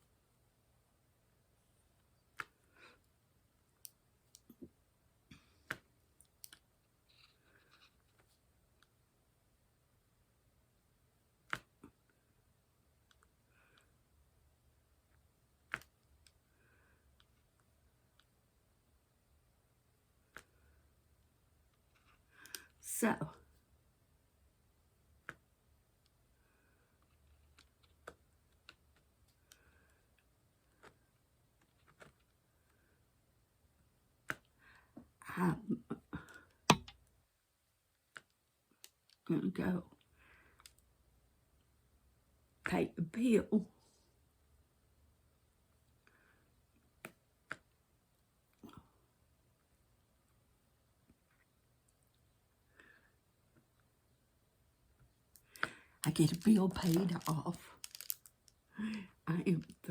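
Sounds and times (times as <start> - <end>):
faint clicks and taps of drill pen: 36.3 - 37.1.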